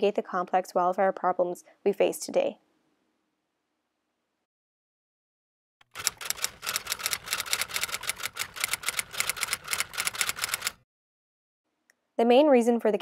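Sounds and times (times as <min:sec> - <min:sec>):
typewriter key clacks: 0:05.9 - 0:10.8.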